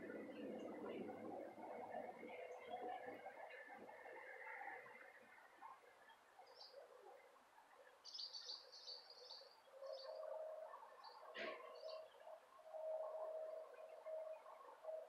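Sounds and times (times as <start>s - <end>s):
faint steady low hum: 0.0s - 15.0s
bird chirps and twittering: 8.0s - 12.9s.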